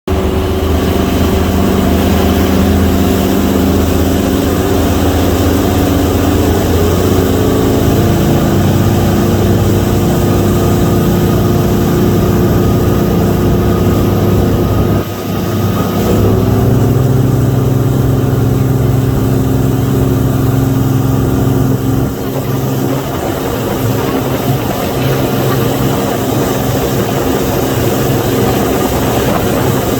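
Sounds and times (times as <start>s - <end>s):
motorboat engine running: 0.1s - 29.9s.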